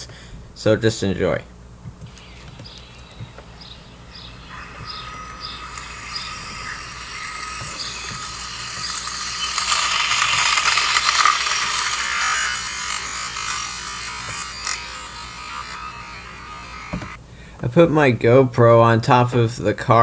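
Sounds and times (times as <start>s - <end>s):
electric motor whining: 1.8s - 17.2s.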